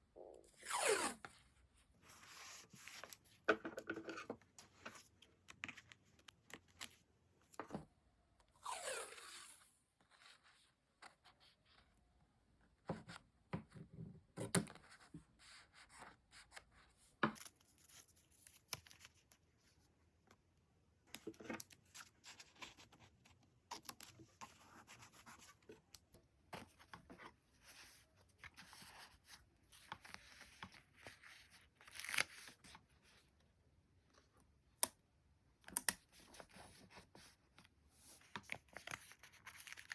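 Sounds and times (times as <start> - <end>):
squeaky rip: 0.6 - 1.2.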